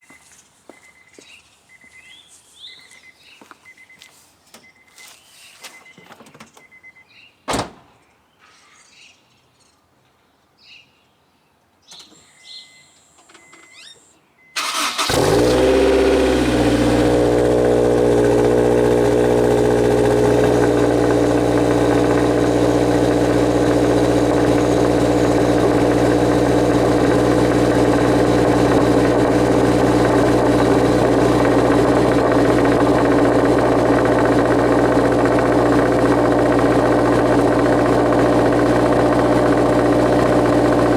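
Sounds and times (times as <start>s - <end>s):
car engine cranking and idling: 14.6s - 40.9s
exhaust rattling: 14.6s - 40.9s.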